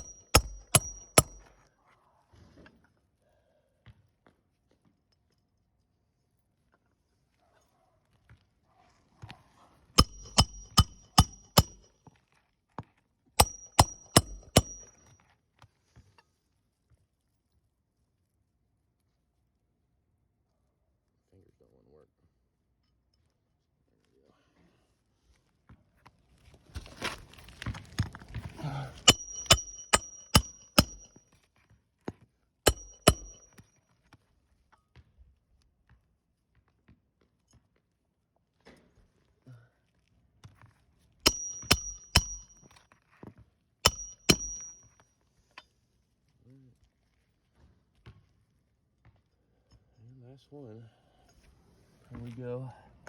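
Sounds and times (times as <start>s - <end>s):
hammer driving nails into shingles: 0.0s - 1.6s, 10.0s - 11.9s, 13.4s - 15.0s, 28.7s - 31.2s, 32.7s - 33.6s, 41.3s - 42.8s, 43.8s - 45.0s
rustling of asphalt shingles: 26.3s - 29.0s.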